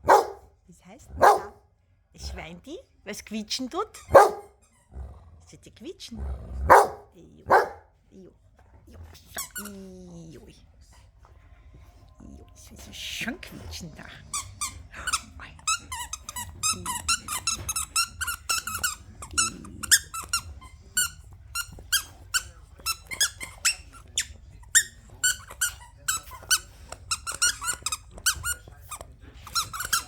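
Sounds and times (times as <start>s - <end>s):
rubber squeaky toy squeaking: 9.4s - 9.8s, 14.3s - 30.0s.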